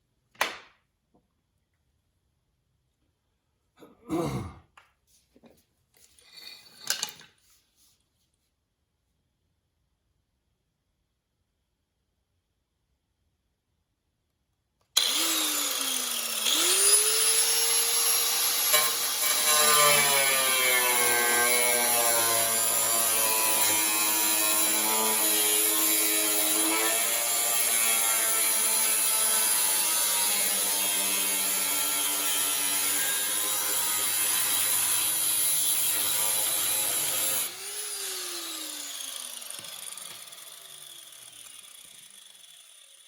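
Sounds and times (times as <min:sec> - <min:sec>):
power cutting tool cutting: 0:15.0 - 0:43.0.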